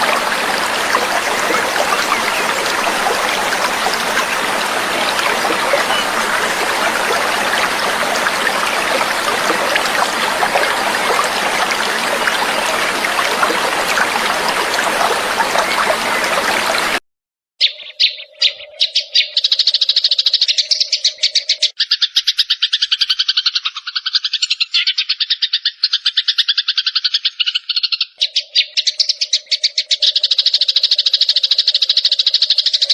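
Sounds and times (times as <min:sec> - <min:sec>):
songbird chirping and trilling: 0:00.0 - 0:16.4, 0:17.6 - 0:31.4
stream babbling: 0:00.0 - 0:17.0.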